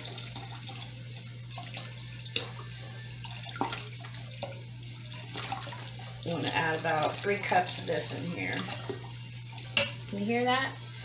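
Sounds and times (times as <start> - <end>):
broth pouring into pot: 0.0 - 10.2.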